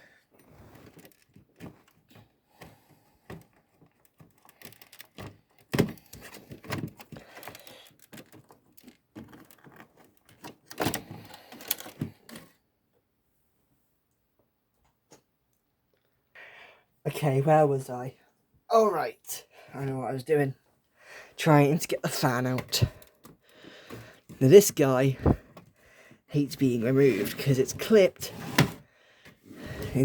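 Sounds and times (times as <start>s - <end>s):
plastic parts clicking and rattling: 0.7s - 12.6s, 22.1s - 24.4s.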